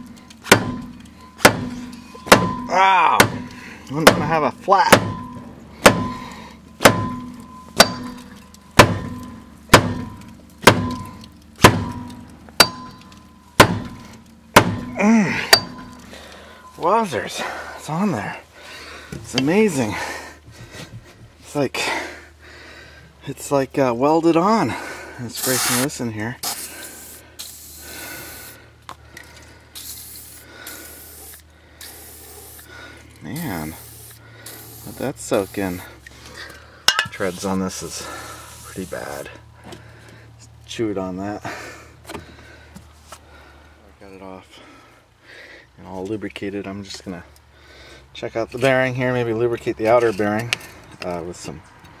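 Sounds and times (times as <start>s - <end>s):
metal blows on car wheel: 0.0s - 16.1s
aerosol can spraying: 25.4s - 27.8s, 29.8s - 32.7s, 33.5s - 35.8s.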